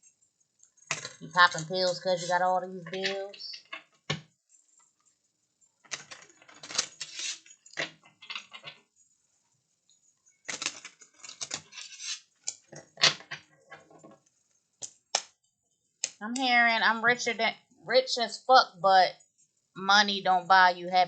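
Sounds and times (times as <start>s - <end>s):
cards being shuffled: 5.9s - 8.7s, 10.5s - 13.3s.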